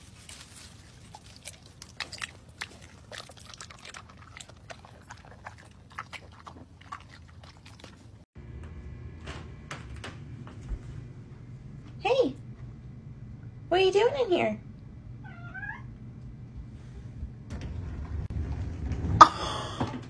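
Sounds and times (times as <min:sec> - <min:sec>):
dog chewing tomatoes: 0:00.0 - 0:08.2.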